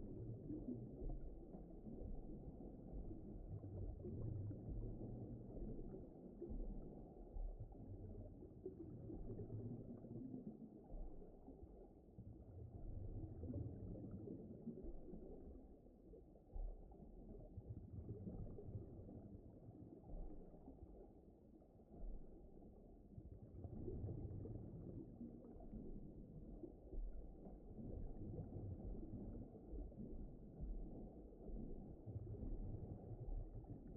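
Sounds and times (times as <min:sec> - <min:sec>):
underwater rumbling wash: 0:22.0 - 0:33.9.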